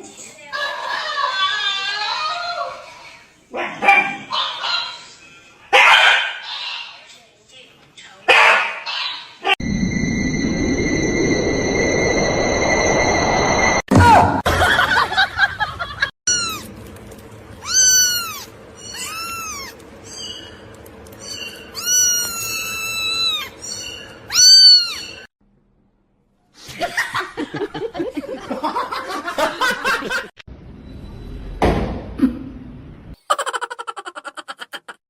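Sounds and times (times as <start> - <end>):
mixed noisy sound: 9.6 - 14.1
cat meowing: 16.3 - 16.7, 17.6 - 19.8, 21.7 - 23.6, 24.3 - 25.3.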